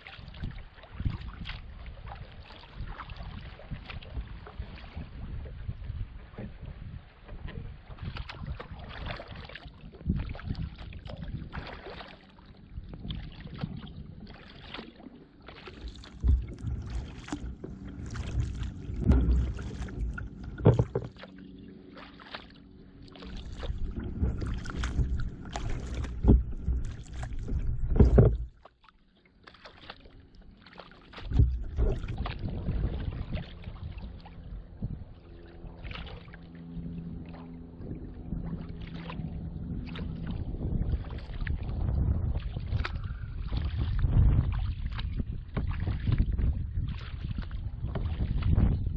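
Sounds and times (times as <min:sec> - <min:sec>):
paddle splashing in water: 0:00.0 - 0:48.9
low rumble: 0:15.4 - 0:28.6, 0:31.1 - 0:48.9.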